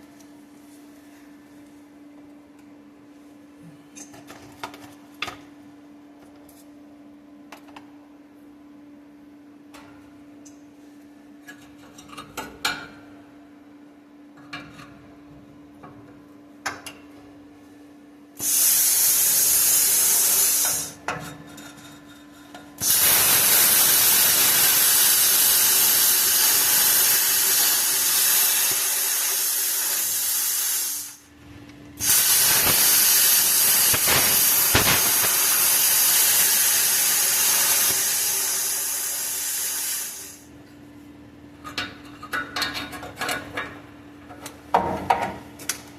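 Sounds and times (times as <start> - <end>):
plasma cutter hissing: 18.4 - 21.0, 22.8 - 31.3, 32.0 - 40.5.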